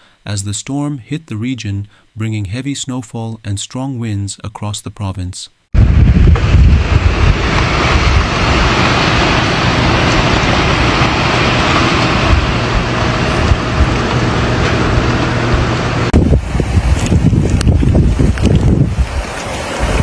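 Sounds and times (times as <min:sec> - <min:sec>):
road vehicle noise: 0:05.8 - 0:20.0.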